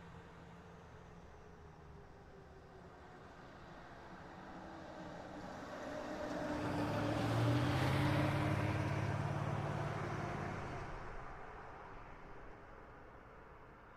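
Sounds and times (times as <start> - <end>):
diesel vehicle driving past: 6.5 - 11.2.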